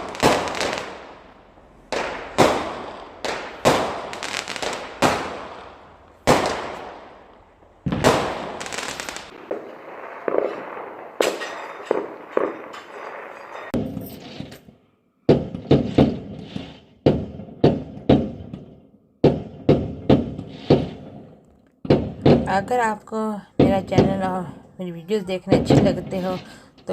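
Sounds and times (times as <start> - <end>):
echoing rumble: 0.0 - 13.4
fireworks crackling: 0.0 - 14.4
fireworks bangs: 0.0 - 26.9.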